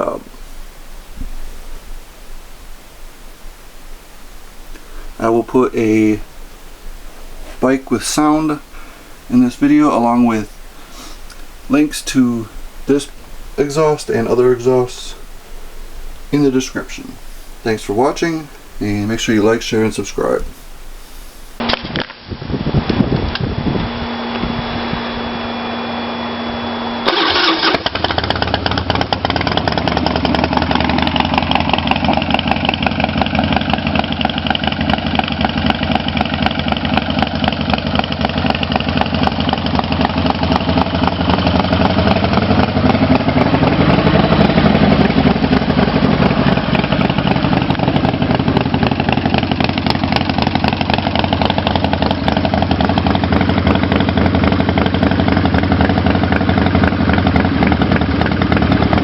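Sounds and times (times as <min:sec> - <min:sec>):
motorcycle engine starting and idling: 0:21.6 - 0:59.0.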